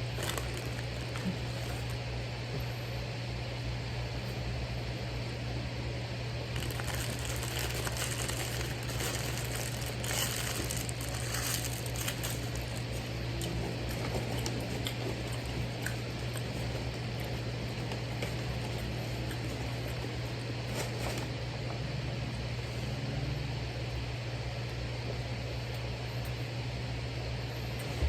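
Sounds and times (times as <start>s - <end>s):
paper wrapper crinkling: 0.0s - 2.0s, 6.5s - 15.6s
steady low hum: 0.0s - 28.0s.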